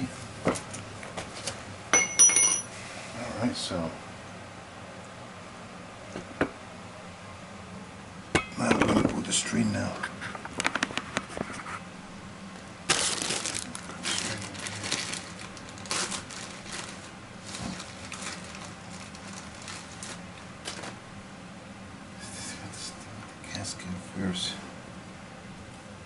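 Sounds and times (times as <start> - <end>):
gasket material crinkling: 12.9 - 21.0.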